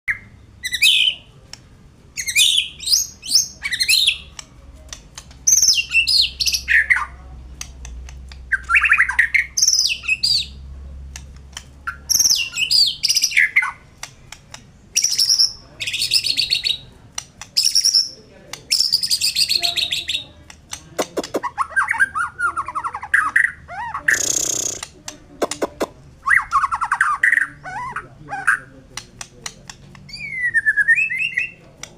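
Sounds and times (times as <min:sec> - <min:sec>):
bird singing whistles and trills: 0:02.2 - 0:04.3, 0:05.5 - 0:07.1, 0:08.5 - 0:10.6, 0:11.9 - 0:13.8, 0:30.1 - 0:31.6
bird clicking notes: 0:04.0 - 0:09.8, 0:13.0 - 0:15.5, 0:16.2 - 0:21.6, 0:24.1 - 0:26.0, 0:28.9 - 0:30.1.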